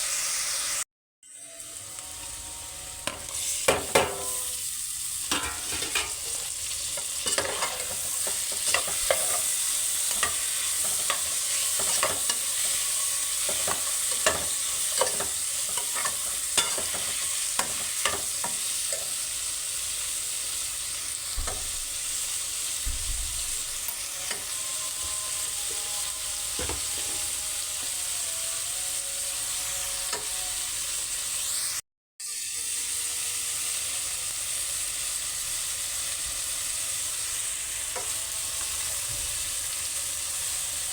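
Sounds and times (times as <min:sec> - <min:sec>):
food sizzling in a pan: 0:00.0 - 0:40.9
spoon clinking against pan: 0:05.3 - 0:06.3, 0:07.2 - 0:19.2.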